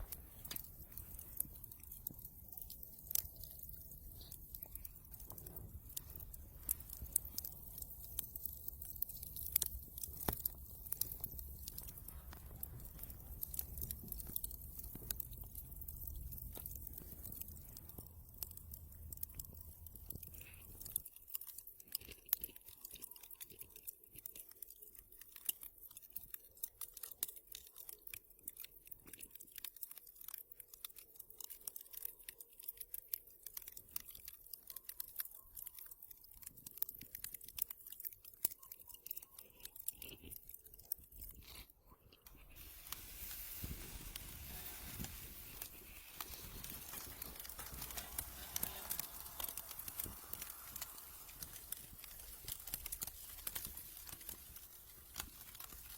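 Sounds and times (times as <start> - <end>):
wood fire crackling: 0.0 - 23.1, 42.2 - 55.9.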